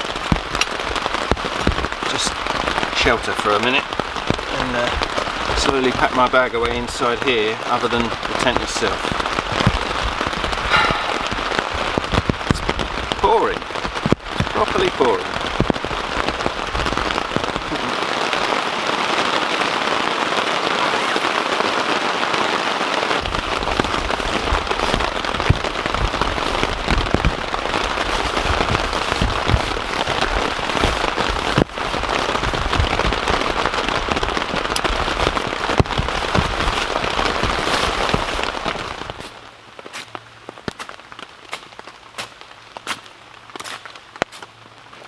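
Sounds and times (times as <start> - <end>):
heavy rain on tent fabric: 0.0 - 45.0
low thuds: 8.5 - 13.2.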